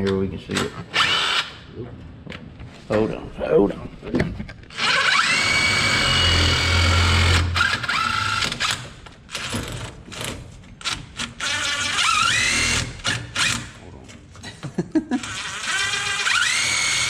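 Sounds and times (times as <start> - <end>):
power drill whining: 0.9 - 1.6, 4.7 - 8.8, 11.4 - 13.8, 15.2 - 17.0.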